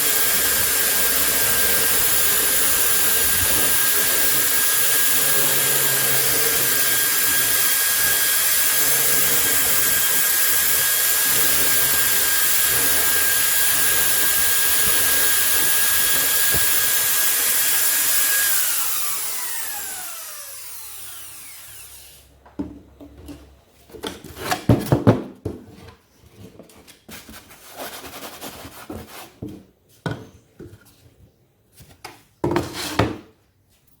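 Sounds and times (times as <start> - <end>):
electric drill whining: 0.0 - 22.3.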